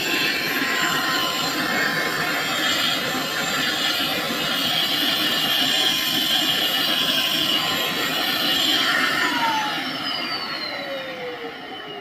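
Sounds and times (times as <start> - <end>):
vacuum cleaner running: 0.0 - 12.0
motor spinning down: 7.4 - 12.0.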